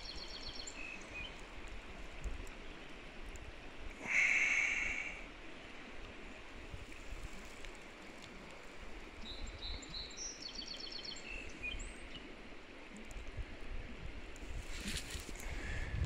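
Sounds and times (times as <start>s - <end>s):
songbird singing with trill: 0.0s - 1.4s, 9.2s - 12.2s.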